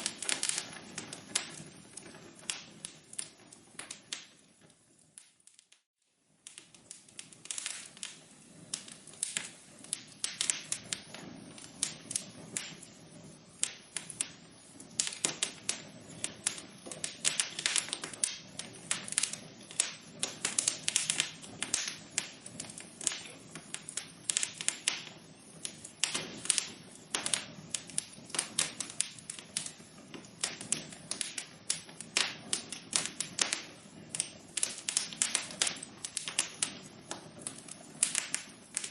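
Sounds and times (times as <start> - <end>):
fire low hiss: 0.0 - 38.9
wood fire crackling and popping: 0.0 - 38.9.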